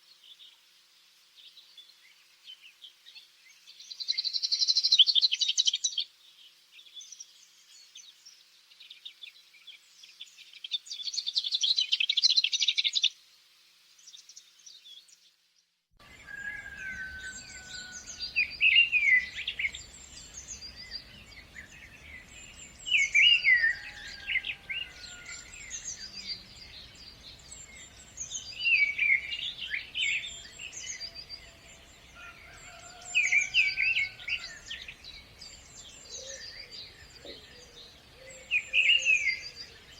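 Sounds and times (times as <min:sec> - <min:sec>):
low steady background noise: 0:00.0 - 0:39.9
birds chirping and singing: 0:16.0 - 0:39.9.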